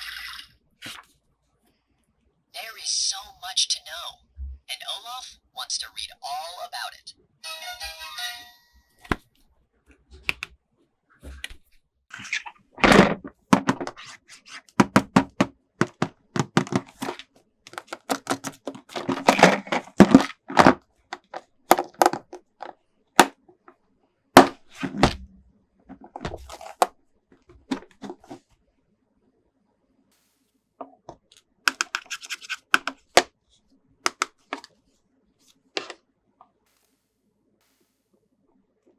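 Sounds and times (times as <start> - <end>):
plastic toy parts tapping and clicking: 12.8 - 23.7, 25.9 - 28.4, 30.8 - 33.3, 34.1 - 34.7.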